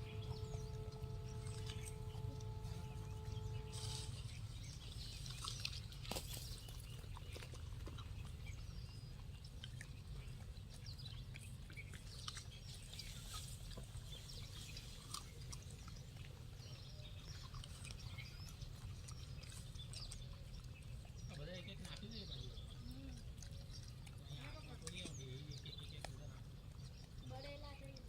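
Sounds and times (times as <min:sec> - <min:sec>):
steady low rumble: 0:00.0 - 0:07.1
monkeys crunching apples: 0:00.0 - 0:28.0.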